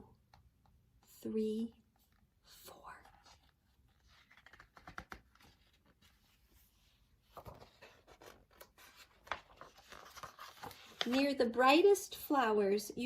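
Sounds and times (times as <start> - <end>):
paper rustling: 3.1 - 11.7
book pages clicking: 4.0 - 5.8, 7.4 - 11.3.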